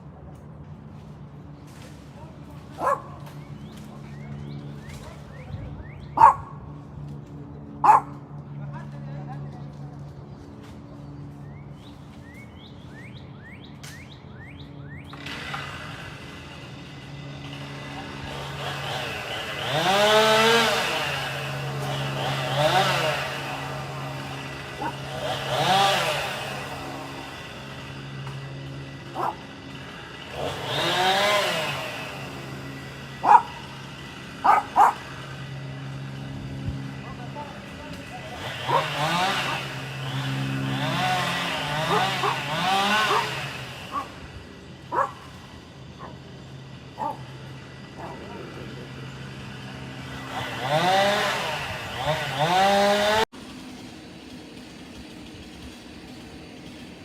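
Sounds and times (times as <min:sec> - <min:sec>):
dog barking: 0:02.8 - 0:03.2, 0:06.2 - 0:06.6, 0:07.8 - 0:08.2, 0:29.2 - 0:29.4, 0:33.2 - 0:33.6, 0:34.4 - 0:35.0, 0:41.9 - 0:42.4, 0:43.1 - 0:43.3, 0:44.9 - 0:45.2, 0:47.0 - 0:47.2, 0:48.0 - 0:48.2
songbird whistling: 0:03.4 - 0:06.4, 0:11.4 - 0:15.2.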